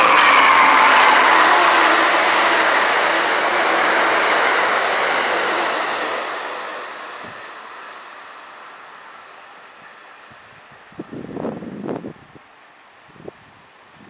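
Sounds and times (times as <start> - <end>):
passenger train passing: 0.0 - 12.2.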